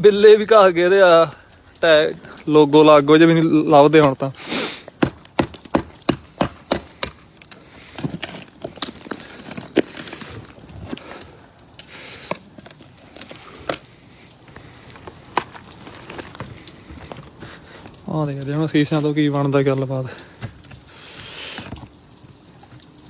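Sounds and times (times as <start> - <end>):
metal spike chipping ice: 4.4 - 10.5.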